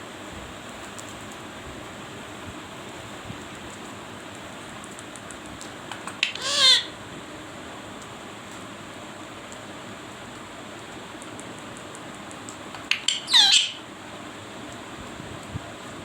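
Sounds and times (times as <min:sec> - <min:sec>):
parrot call: 0:06.2 - 0:07.0, 0:12.8 - 0:13.8.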